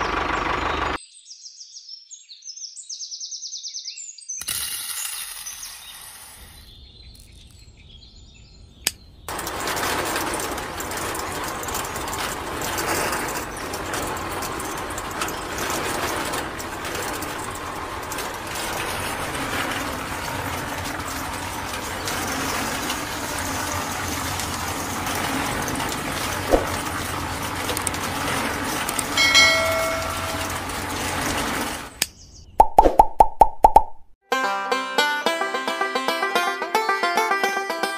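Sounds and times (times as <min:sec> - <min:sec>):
sieve trays rattling: 0:09.3 - 0:32.0
short ringing tone: 0:29.2 - 0:30.8.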